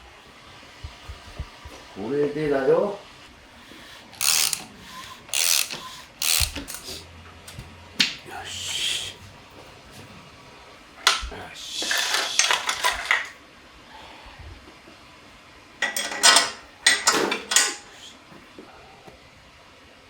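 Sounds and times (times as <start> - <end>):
metal tools clinking on workbench: 15.8 - 17.8.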